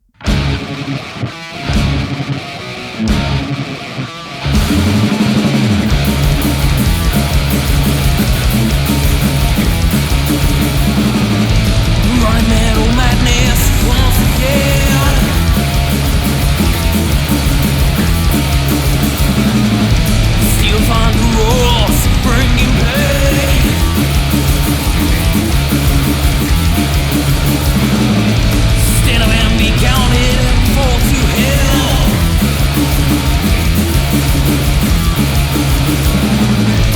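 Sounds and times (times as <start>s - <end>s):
rock band playing: 0.0s - 36.9s.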